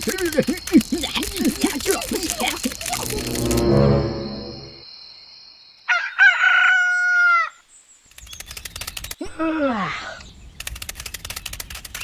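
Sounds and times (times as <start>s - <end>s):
quick run of clicks: 0.0s - 3.4s, 8.1s - 9.2s, 10.6s - 12.0s
short falling pitch sound: 3.2s - 4.8s
rooster crowing: 5.9s - 7.6s.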